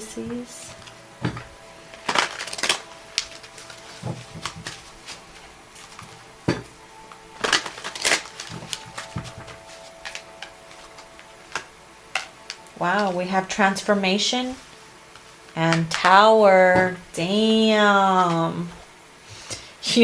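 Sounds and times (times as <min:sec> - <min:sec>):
cards being shuffled: 0:01.9 - 0:06.2, 0:07.1 - 0:13.2.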